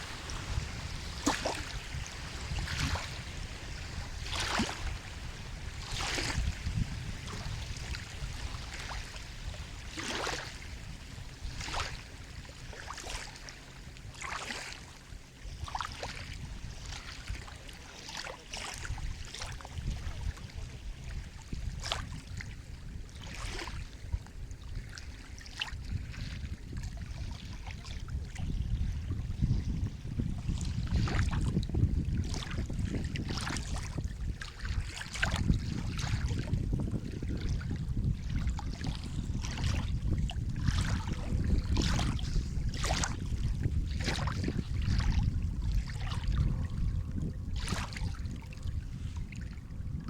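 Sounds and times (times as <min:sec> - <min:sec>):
steady low rumble: 0:00.0 - 0:05.9, 0:35.3 - 0:50.0
sea water lapping and splashing: 0:00.0 - 0:50.0.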